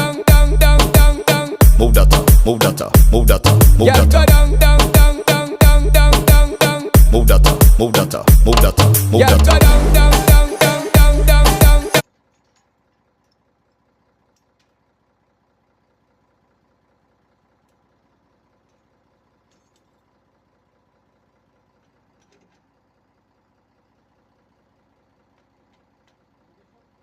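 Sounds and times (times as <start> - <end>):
background music: 0.0 - 12.0
faint tractor engine idling: 0.0 - 27.0.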